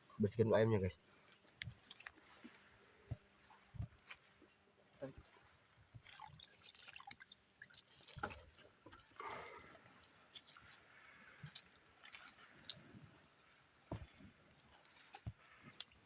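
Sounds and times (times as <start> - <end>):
crickets chirring: 0.0 - 16.0
water sloshing and splashing: 5.9 - 13.1.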